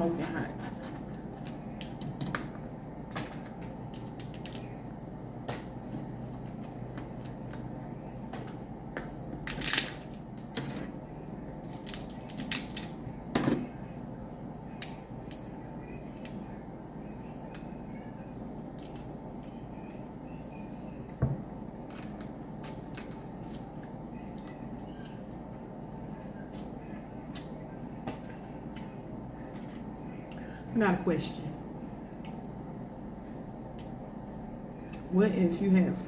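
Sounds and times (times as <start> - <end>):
crab shells cracking: 3.2 - 4.8, 9.4 - 10.5, 11.6 - 13.0, 14.8 - 16.4, 18.8 - 19.1.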